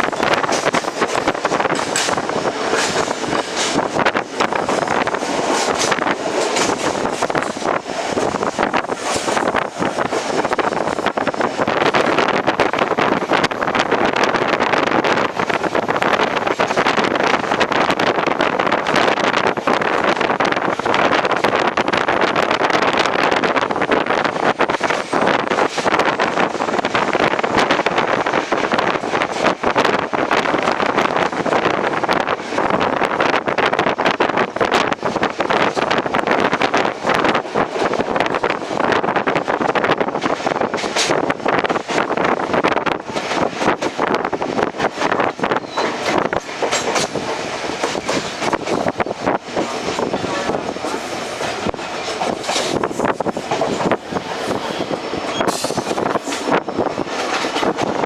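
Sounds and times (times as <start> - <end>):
rattling and clatter: 0.0 - 14.2, 44.8 - 58.0
steady rushing noise: 0.0 - 58.0
train carriage running noise: 0.0 - 58.0
wind on microphone: 0.0 - 58.0.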